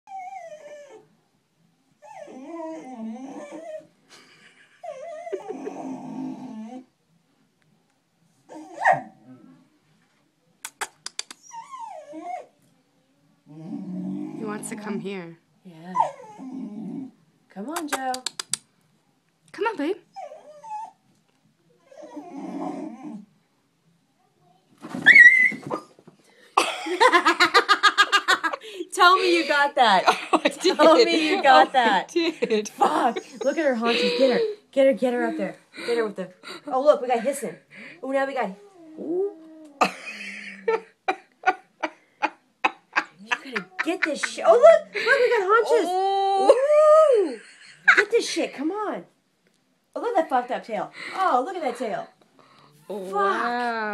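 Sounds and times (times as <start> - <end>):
dog whining: 0.1 - 1.1, 2.0 - 3.9, 4.8 - 6.9, 8.5 - 9.5, 11.3 - 12.6, 15.9 - 17.1, 20.1 - 21.0, 21.8 - 23.3, 24.9 - 26.0, 33.2 - 34.6
dog growling: 4.8 - 6.9, 8.6 - 9.7, 13.5 - 15.0, 16.0 - 17.2, 21.9 - 23.3
person laughing: 26.6 - 34.6, 39.8 - 45.4.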